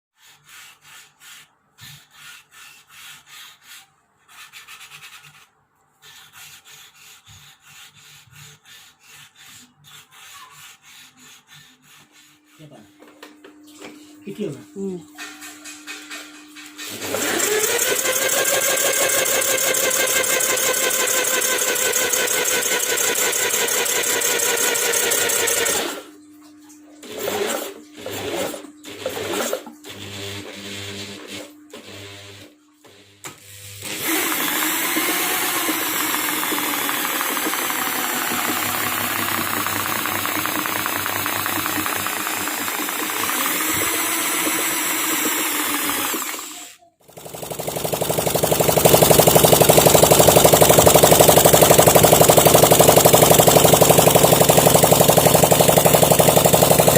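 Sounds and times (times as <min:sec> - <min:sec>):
engine revving at high revs: 0:47.5 - 0:56.9.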